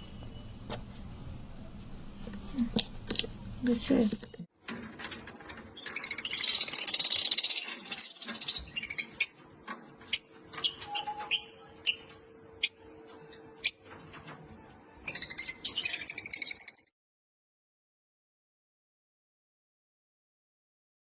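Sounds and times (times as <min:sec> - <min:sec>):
lovebirds chattering and chirping: 0:05.8 - 0:09.4, 0:10.0 - 0:14.0, 0:15.0 - 0:16.9.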